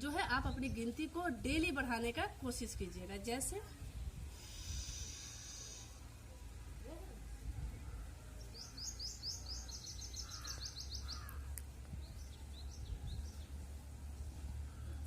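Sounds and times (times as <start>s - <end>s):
songbird chirping: 7.8s - 13.8s.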